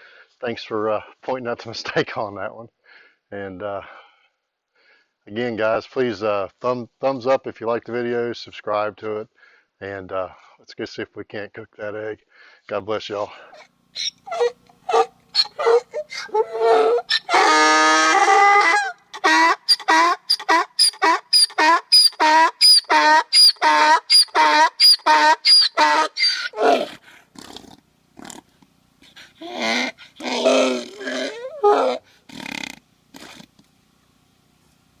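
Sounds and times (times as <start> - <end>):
animal calling: 13.6 - 33.5.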